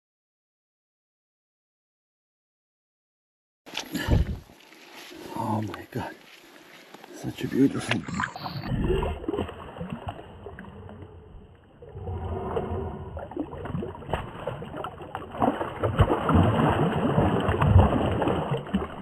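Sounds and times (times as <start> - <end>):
low rumbling: 3.9 - 4.5, 8.0 - 14.9
fish thrashing and splashing water: 7.9 - 19.0.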